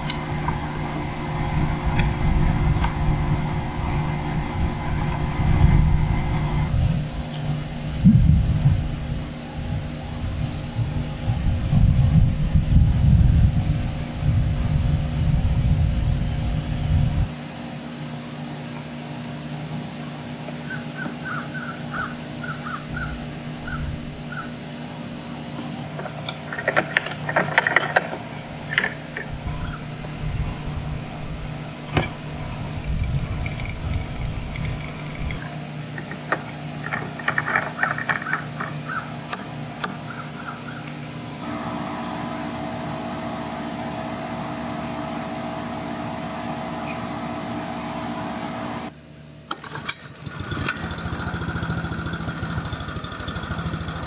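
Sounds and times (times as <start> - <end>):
steady background hum: 0.0 - 54.0
crows cawing: 20.7 - 24.6, 38.1 - 39.2, 40.0 - 41.0.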